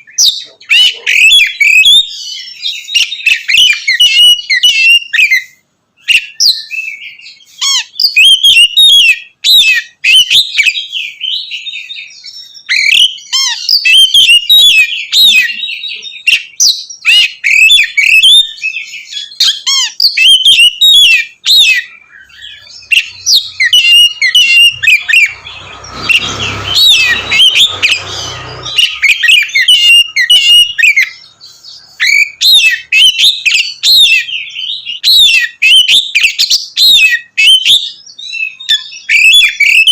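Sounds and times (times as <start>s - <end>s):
bird singing whistled phrases: 0.0s - 39.9s
rushing noise: 24.5s - 29.3s.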